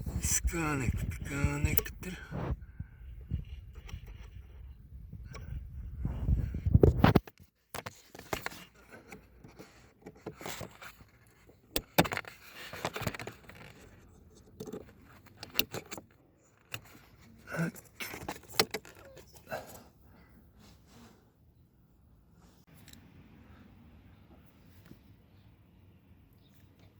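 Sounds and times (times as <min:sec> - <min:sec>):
microphone handling rumble: 0:00.0 - 0:07.2.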